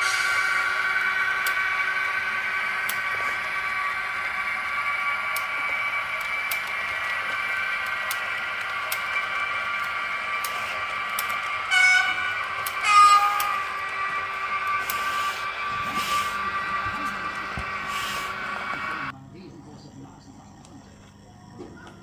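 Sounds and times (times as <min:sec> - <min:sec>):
model train whine: 0:00.0 - 0:22.0
scattered clicks: 0:05.3 - 0:11.6
train horn toot: 0:11.6 - 0:16.9.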